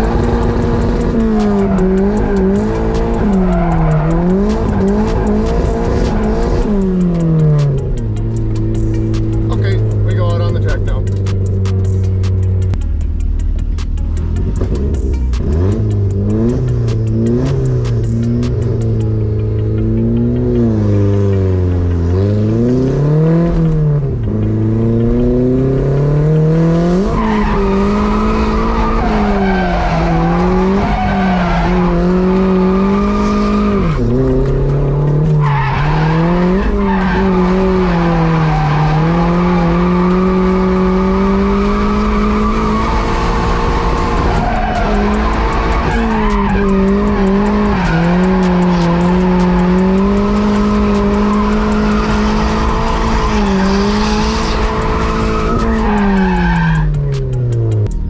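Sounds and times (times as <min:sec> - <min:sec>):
tires squealing and skidding: 0:00.0 - 0:07.8, 0:24.9 - 0:57.8
car engine revving: 0:00.0 - 0:58.0.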